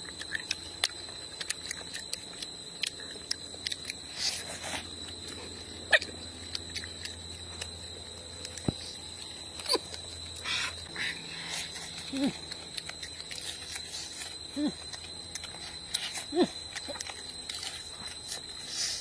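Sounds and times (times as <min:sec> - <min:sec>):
person chewing with wet crunches: 0:00.0 - 0:19.0.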